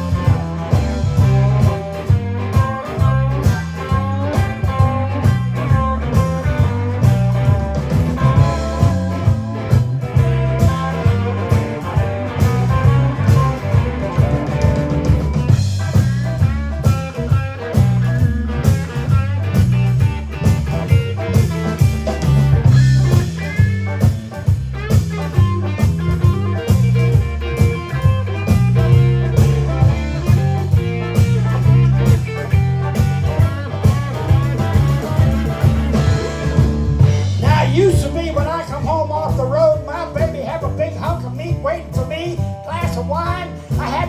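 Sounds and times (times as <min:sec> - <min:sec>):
blues band playing: 0:00.0 - 0:44.0
guitar: 0:00.0 - 0:44.0.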